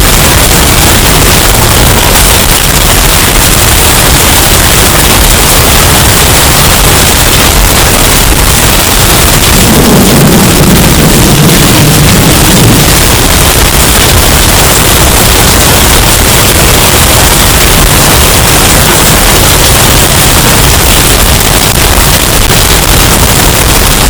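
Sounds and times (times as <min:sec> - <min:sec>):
deep rumble: 0:00.0 - 0:24.0
distorted hurricane wind: 0:00.0 - 0:24.0.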